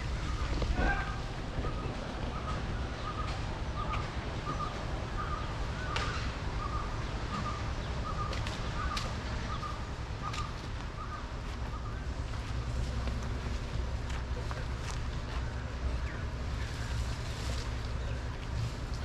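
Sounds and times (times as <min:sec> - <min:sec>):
bird calling: 0:00.0 - 0:12.8.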